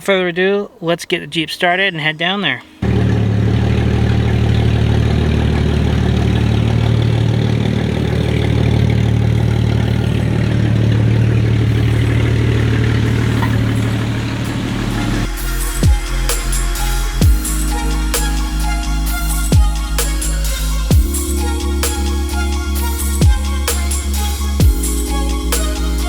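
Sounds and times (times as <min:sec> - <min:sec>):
background music: 0:02.6 - 0:26.0
car engine idling: 0:02.6 - 0:26.0.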